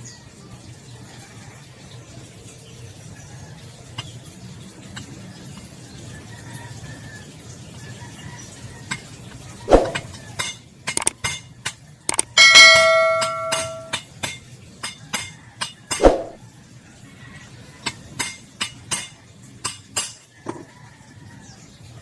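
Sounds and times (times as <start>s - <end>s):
hammer striking metal: 12.1s - 14.4s, 15.9s - 16.4s.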